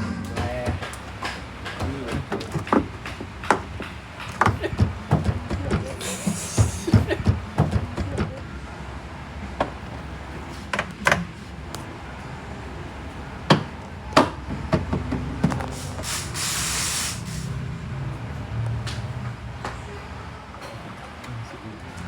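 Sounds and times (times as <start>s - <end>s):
sharp knocks and clicks: 0.2s - 5.9s
hissing spray: 6.0s - 7.0s, 15.7s - 17.6s.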